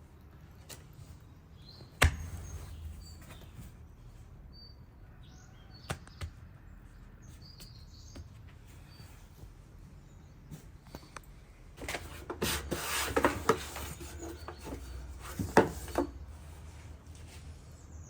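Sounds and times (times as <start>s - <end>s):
faint bird chirps: 1.1s - 11.2s.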